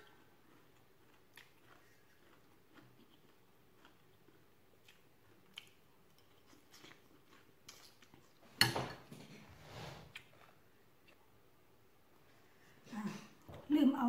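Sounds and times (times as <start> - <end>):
quiet chewing: 0.0 - 8.6, 10.0 - 11.5.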